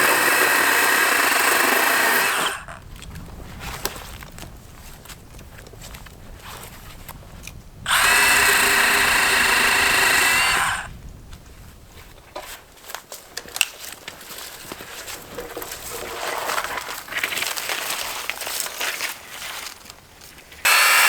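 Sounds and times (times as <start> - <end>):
power saw cutting wood: 0.0 - 2.8, 7.9 - 10.9, 20.7 - 21.0
small knocks and rustles: 2.8 - 7.6, 11.3 - 20.6.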